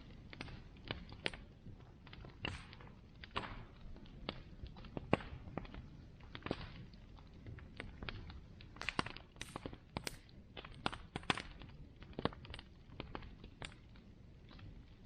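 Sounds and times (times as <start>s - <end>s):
low rumble of flame: 0.0s - 15.0s
wood crackling and popping: 0.0s - 15.0s.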